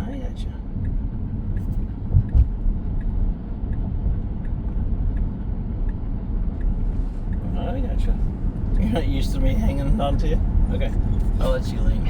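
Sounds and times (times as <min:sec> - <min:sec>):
road and tyre rumble in car: 0:00.0 - 0:12.0
short low thumps: 0:00.8 - 0:04.4.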